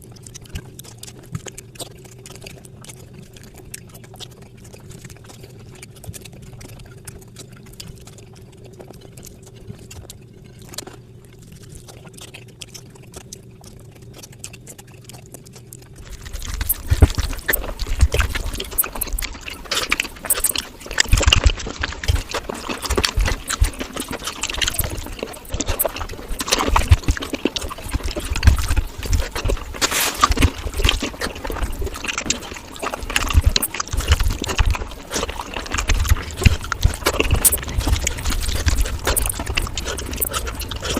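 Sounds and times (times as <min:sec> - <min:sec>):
wet chewing and lip-smacking: 0:00.0 - 0:40.9
faint wet mouth clicks: 0:11.6 - 0:40.9.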